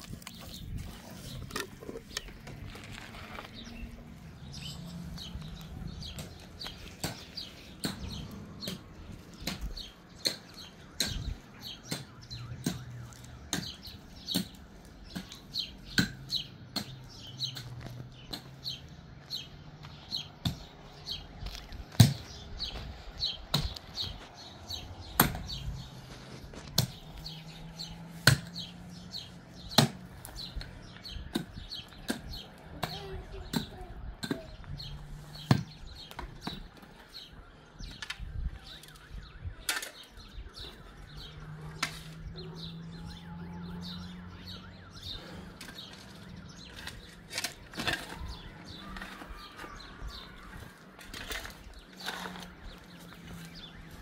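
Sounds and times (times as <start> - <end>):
small birds chirping: 0.0 - 54.0
sharp knocks of chopping: 22.0 - 22.3, 25.2 - 25.6, 29.7 - 30.0.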